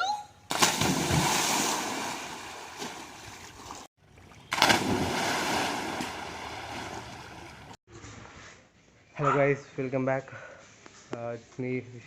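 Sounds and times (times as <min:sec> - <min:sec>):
water rushing and splashing: 0:04.5 - 0:07.8.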